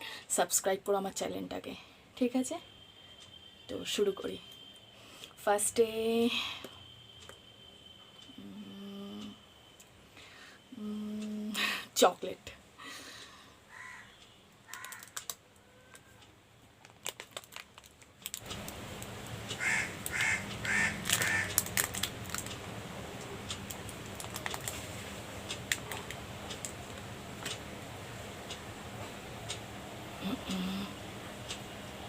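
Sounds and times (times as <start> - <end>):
steady background hiss: 0.0 - 32.0
wrapper crinkling: 14.7 - 15.4, 16.8 - 18.5, 20.8 - 22.6, 23.7 - 24.8.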